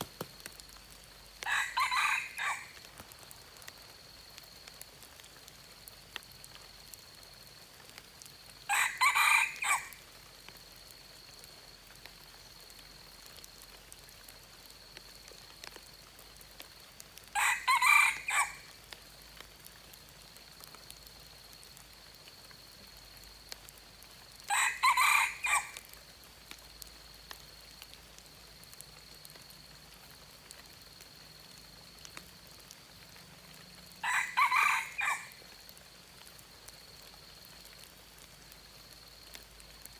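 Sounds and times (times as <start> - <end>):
rooster crowing: 1.4 - 2.8, 8.7 - 10.0, 17.3 - 18.7, 24.5 - 25.8, 34.0 - 35.4.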